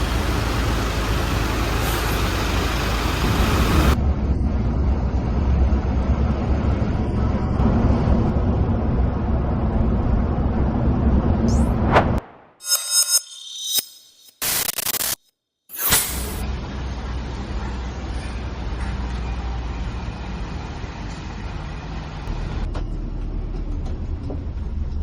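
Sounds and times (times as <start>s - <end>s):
bus rumble from inside: 0.0s - 12.2s, 16.2s - 25.0s
short rising whoosh: 11.5s - 14.1s.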